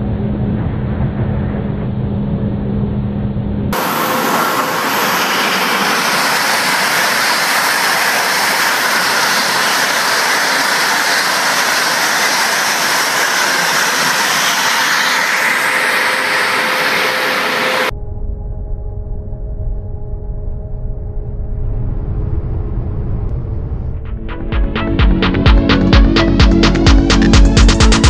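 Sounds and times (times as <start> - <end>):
high-speed train rushing: 0.0 - 17.9, 22.1 - 28.0.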